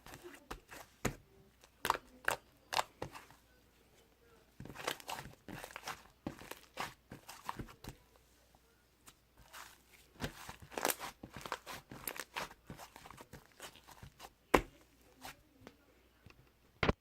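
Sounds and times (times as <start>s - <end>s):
slime crackling and popping: 10.2s - 14.2s.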